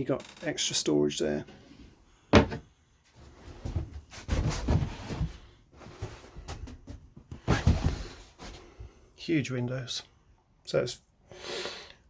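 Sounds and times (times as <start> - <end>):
cushions and boards rubbing and knocking: 3.3 - 8.6.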